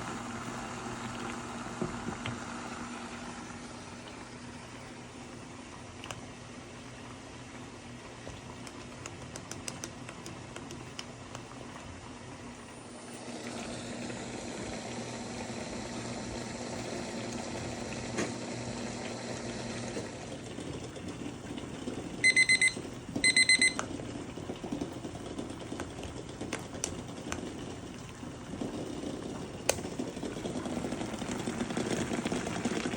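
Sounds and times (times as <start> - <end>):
food bubbling in a pan: 0.0 - 32.9
kitchen appliance beeping: 22.2 - 23.9.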